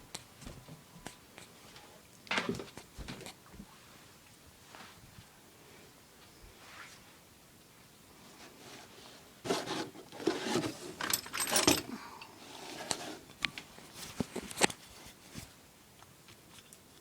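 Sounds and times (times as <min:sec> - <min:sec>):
objects scraping and rattling: 0:08.4 - 0:15.4.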